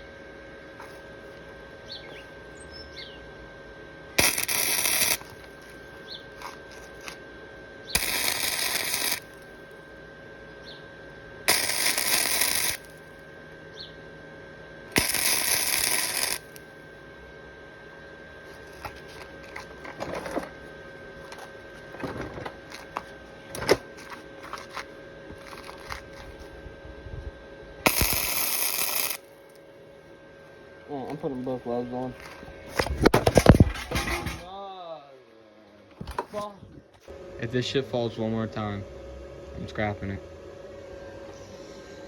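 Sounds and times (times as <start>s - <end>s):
electric welding arc crackling: 4.2s - 7.2s, 8.0s - 9.6s, 11.5s - 13.1s, 14.9s - 16.7s, 27.9s - 29.4s.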